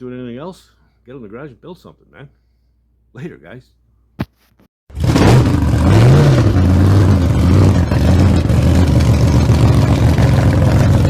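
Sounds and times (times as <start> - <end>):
car engine revving: 4.9 - 11.0.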